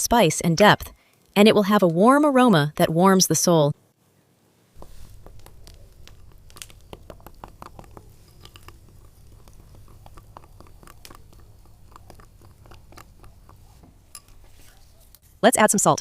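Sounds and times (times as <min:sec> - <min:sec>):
hands mixing spices in oil: 0:04.8 - 0:15.4.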